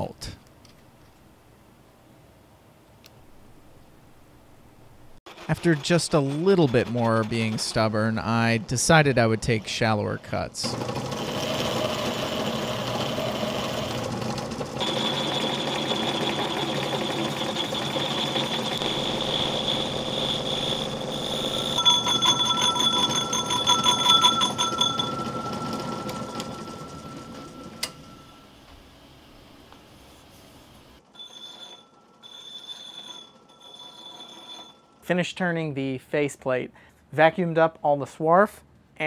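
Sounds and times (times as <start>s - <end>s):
click: 2.9s - 3.2s
metal lathe cutting whine: 10.7s - 28.3s.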